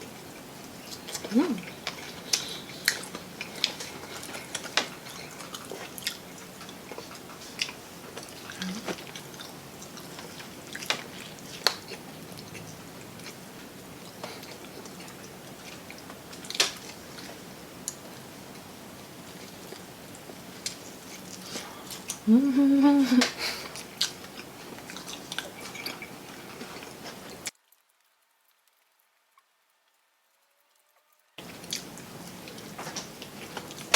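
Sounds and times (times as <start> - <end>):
people chewing fried chicken: 0.0 - 27.5, 31.4 - 33.9.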